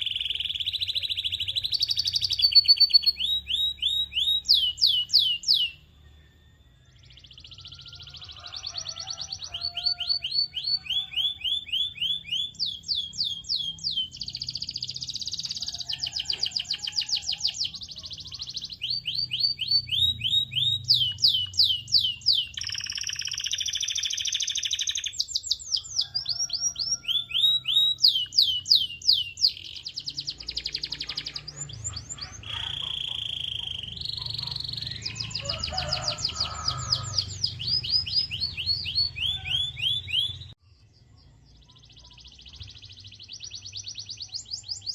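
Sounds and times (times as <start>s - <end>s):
canary singing: 0.0s - 40.6s, 41.4s - 44.9s.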